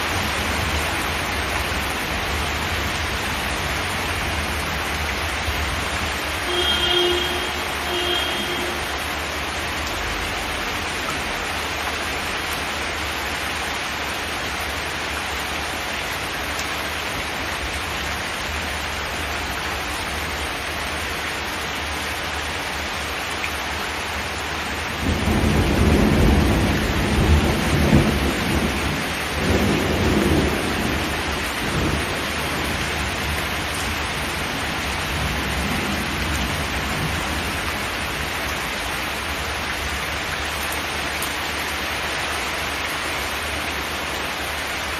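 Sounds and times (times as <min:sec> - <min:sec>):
rain on a metal roof: 0:00.0 - 0:44.9
thunder rumbling: 0:25.0 - 0:33.4.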